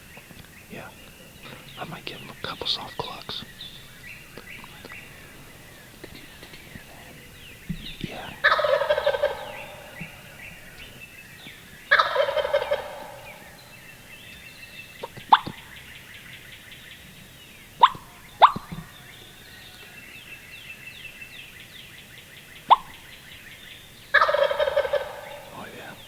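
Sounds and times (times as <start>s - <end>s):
faint songbirds chirping: 0.0s - 26.0s
turkey call clucks: 2.5s - 11.0s, 11.9s - 14.4s, 15.0s - 15.7s, 17.8s - 19.1s, 22.6s - 23.1s, 24.1s - 26.0s
turkey gobbling: 3.0s - 11.0s, 11.8s - 14.1s, 15.0s - 15.8s, 17.8s - 19.9s, 22.6s - 23.1s, 24.1s - 26.0s.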